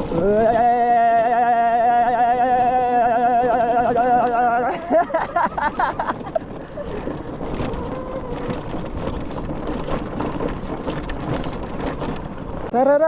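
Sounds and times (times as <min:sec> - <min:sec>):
motorcycle engine and road noise: 0:00.0 - 0:13.0.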